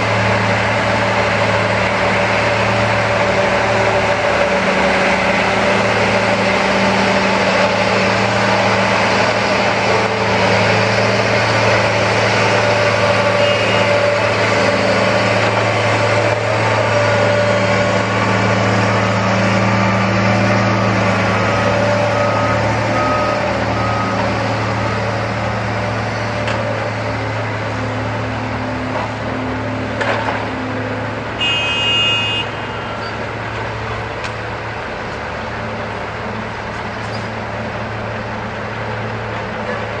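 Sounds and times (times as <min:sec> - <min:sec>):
heavy engines droning: 0:00.0 - 0:40.0
short horn tone: 0:13.4 - 0:13.9, 0:31.4 - 0:33.1.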